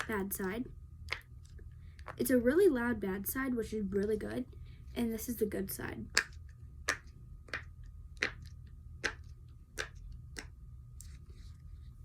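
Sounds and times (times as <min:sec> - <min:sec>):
fidget toy bubbles popping: 0:06.1 - 0:10.5.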